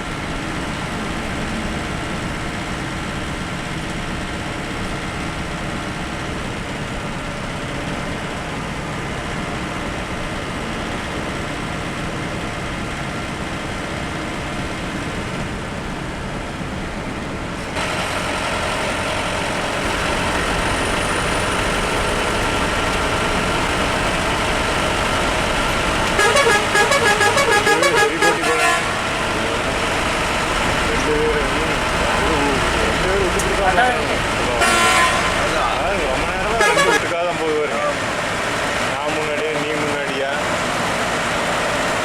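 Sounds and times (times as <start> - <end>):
bus engine and road noise: 0.0 - 42.0
warbling multi-tone horn: 26.2 - 29.3, 34.6 - 35.5, 36.5 - 37.2.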